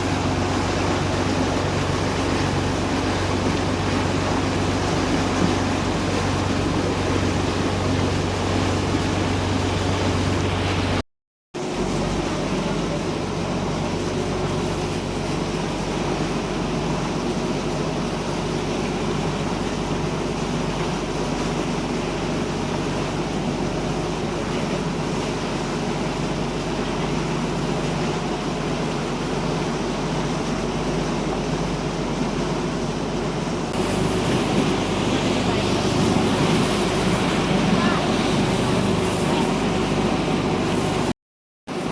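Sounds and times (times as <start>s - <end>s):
boat engine running: 0.0s - 11.0s, 11.6s - 41.9s
water noise: 0.0s - 11.0s, 11.6s - 41.9s
wind: 0.0s - 11.0s, 11.6s - 41.9s.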